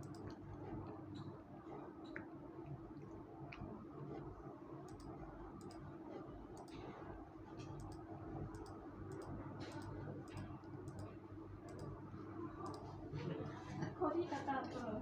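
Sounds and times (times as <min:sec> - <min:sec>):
steady low hum: 0:00.0 - 0:15.0
chewing clicks: 0:04.9 - 0:05.8, 0:11.7 - 0:12.0, 0:12.6 - 0:12.8.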